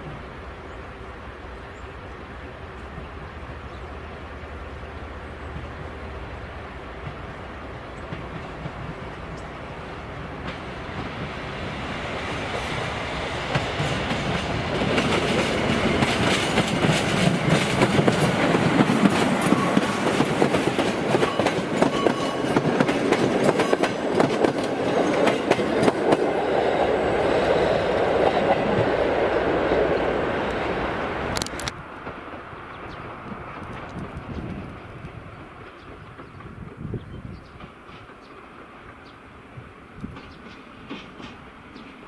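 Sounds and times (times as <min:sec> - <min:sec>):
train rumble: 0:00.0 - 0:42.0
train wheels clacking over rail joints: 0:06.8 - 0:30.7, 0:40.0 - 0:42.0.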